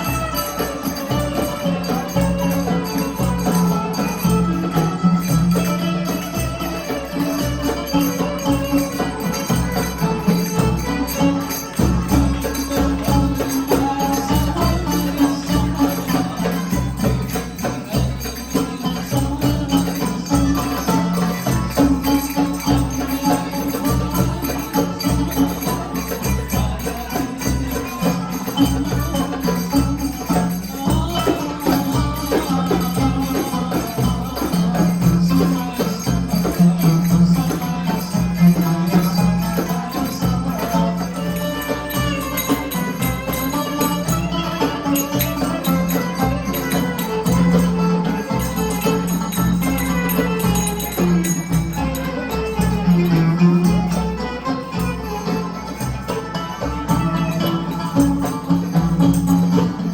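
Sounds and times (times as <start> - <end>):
jingling hand percussion: 0.0 - 59.9
live band music: 34.6 - 59.9.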